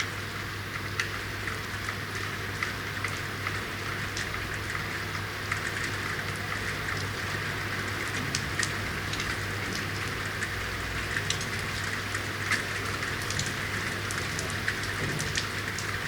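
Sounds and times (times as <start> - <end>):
rain drops on hard surfaces: 0.0 - 16.0.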